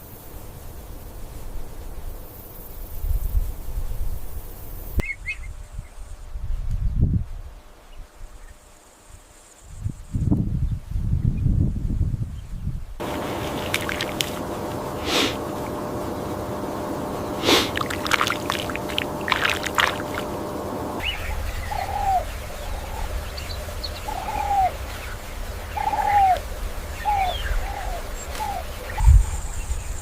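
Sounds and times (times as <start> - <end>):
low rumble: 13.0 - 24.1
low bird calls: 13.0 - 30.0
steady hiss: 13.0 - 30.0.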